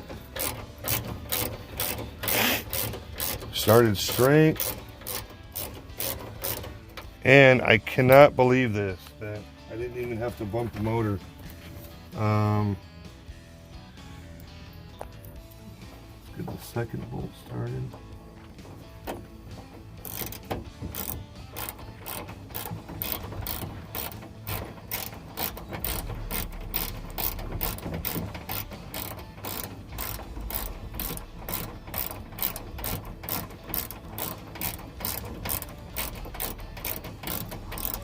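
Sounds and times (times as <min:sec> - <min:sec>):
hand ratchet clicking: 0:00.0 - 0:07.2, 0:17.9 - 0:38.0.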